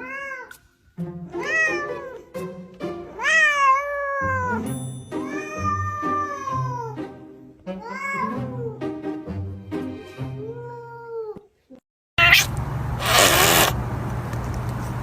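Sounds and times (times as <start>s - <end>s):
cat meowing: 0.0s - 0.6s, 1.4s - 2.3s, 3.2s - 7.0s, 7.8s - 8.8s, 10.4s - 11.5s, 12.2s - 13.7s
background music: 0.8s - 10.6s.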